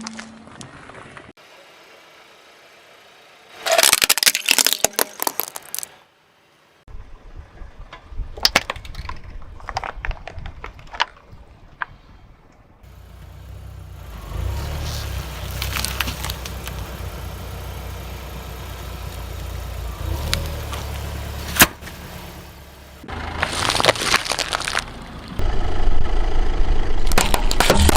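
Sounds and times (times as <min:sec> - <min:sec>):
objects cracking under car tyre: 0:03.6 - 0:06.0, 0:07.9 - 0:12.0, 0:14.0 - 0:17.6, 0:23.1 - 0:25.4, 0:27.0 - 0:27.9
car rumble: 0:05.5 - 0:27.9.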